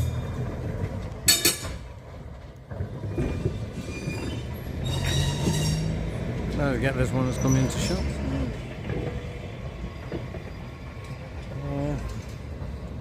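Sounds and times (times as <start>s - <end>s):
electric tram rumbling on track: 0.0s - 13.0s
sharp high metallic screech: 3.8s - 6.0s, 7.2s - 8.2s.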